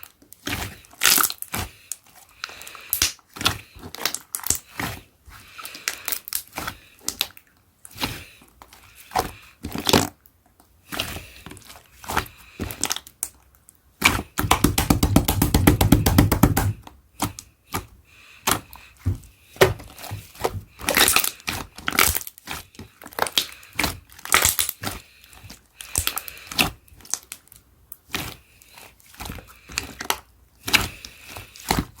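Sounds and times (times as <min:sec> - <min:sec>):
slime squished by hand: 0:14.0 - 0:27.4.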